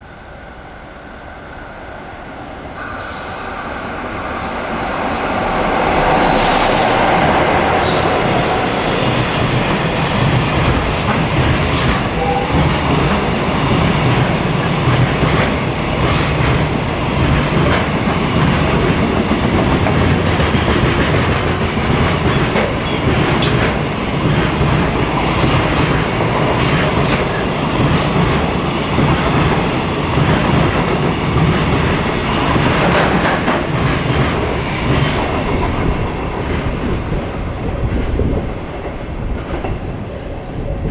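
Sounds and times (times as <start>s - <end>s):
freight train rumbling: 0.0s - 40.9s
high-pitched wheel squeals: 2.8s - 10.1s.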